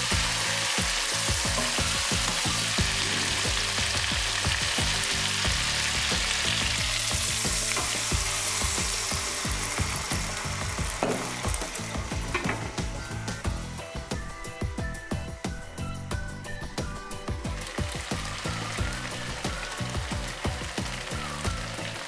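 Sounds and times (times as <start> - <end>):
food sizzling in hot oil: 0.0 - 22.0
knocks and scrapes in a pan: 1.3 - 3.7, 4.8 - 13.5.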